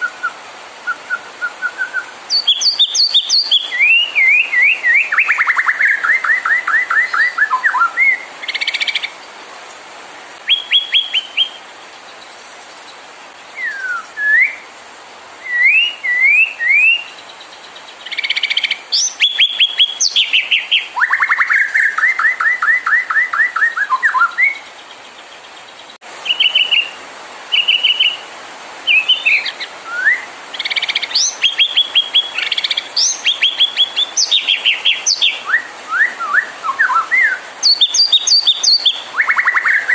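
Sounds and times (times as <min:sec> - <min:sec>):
bird singing rapid whistles: 0:00.0 - 0:09.1, 0:10.5 - 0:11.6, 0:13.6 - 0:14.6, 0:15.4 - 0:17.2, 0:18.1 - 0:24.6, 0:28.9 - 0:39.9
faint hiss: 0:00.0 - 0:39.9.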